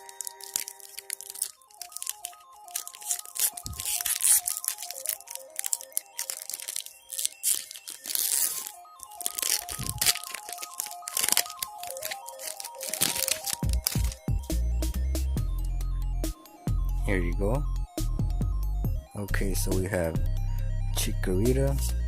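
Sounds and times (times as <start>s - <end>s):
foil wrapper tearing and crinkling: 0.0s - 14.6s
background music light melody: 0.0s - 22.0s.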